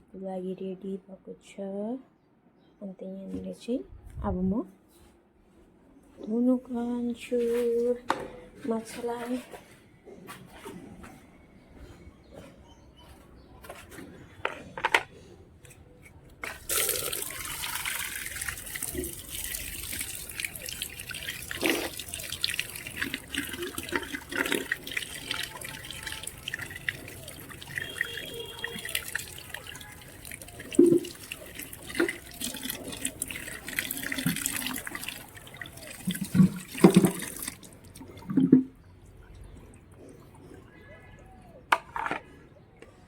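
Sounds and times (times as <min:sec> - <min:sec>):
tap water running and splashing: 0:16.4 - 0:38.6.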